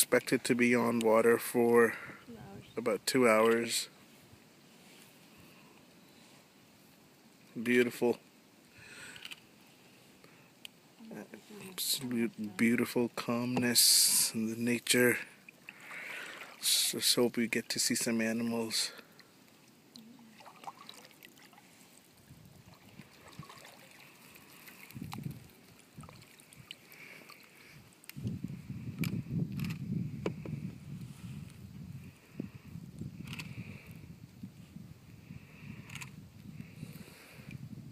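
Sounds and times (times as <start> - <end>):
calm river ambience: 0.0 - 28.2
soft hiss: 0.0 - 37.9
water lapping against canoe: 15.4 - 16.9, 19.0 - 28.0.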